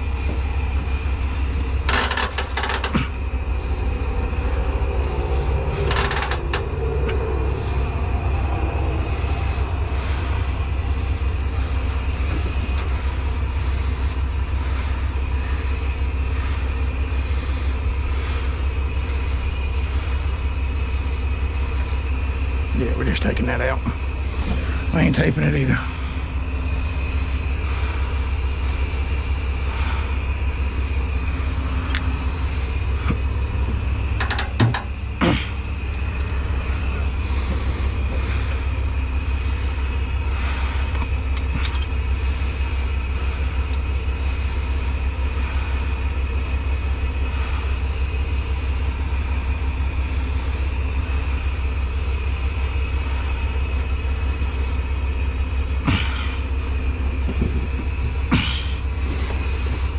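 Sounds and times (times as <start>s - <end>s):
diesel truck engine idling: 0.0s - 59.9s
sharp metal knocks: 34.2s - 35.0s.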